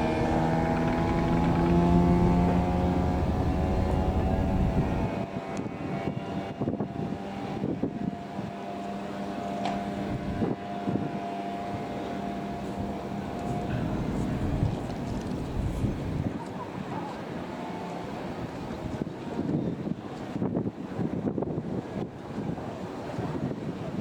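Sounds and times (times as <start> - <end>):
engine droning: 0.0 - 19.0.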